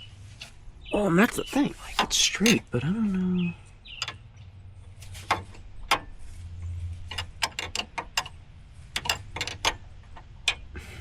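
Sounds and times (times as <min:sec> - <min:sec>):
ratchet wrench clicking: 0:07.1 - 0:10.7.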